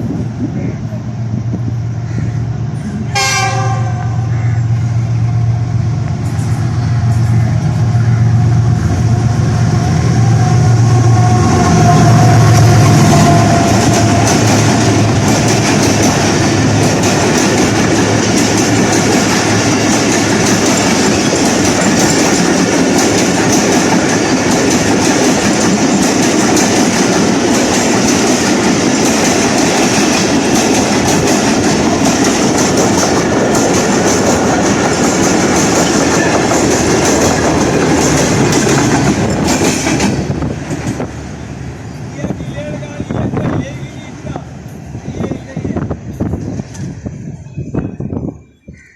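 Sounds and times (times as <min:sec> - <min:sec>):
train wheels clattering over rail joints: 0:12.6 - 0:41.2.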